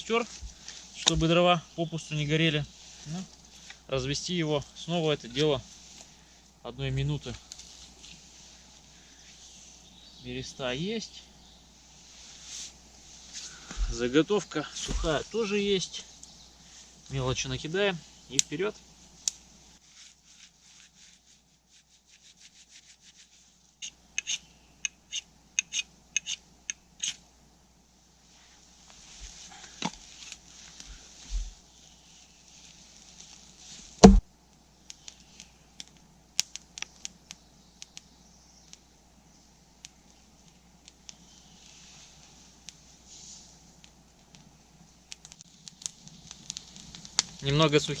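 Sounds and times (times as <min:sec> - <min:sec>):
rustling of kindling: 0:00.0 - 0:10.0, 0:11.7 - 0:23.8, 0:28.2 - 0:34.0, 0:40.2 - 0:48.0
thick stick snapping: 0:34.0 - 0:34.2
twigs snapping: 0:45.1 - 0:47.4.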